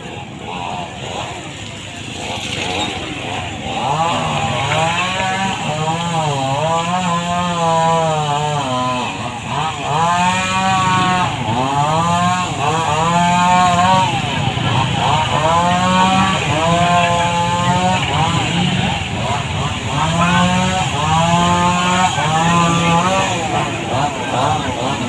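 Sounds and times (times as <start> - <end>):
small petrol engine revving: 0.0 - 25.0.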